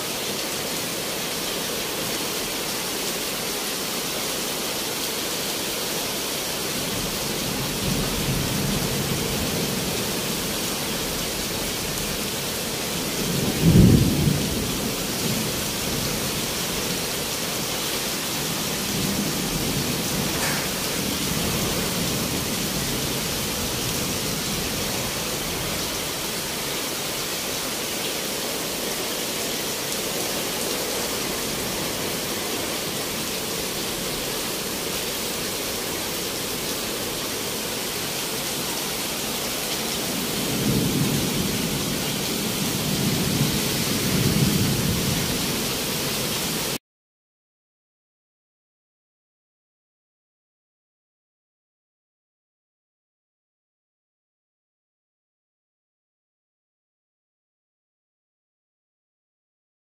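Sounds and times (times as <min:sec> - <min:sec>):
rain on street and trees: 0:00.0 - 0:46.8.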